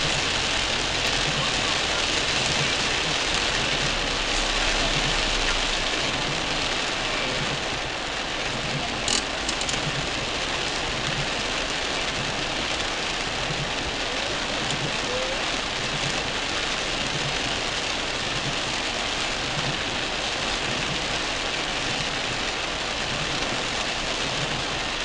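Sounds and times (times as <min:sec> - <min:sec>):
car engine humming: 0:00.0 - 0:24.9
heavy rain on car roof: 0:00.0 - 0:25.0.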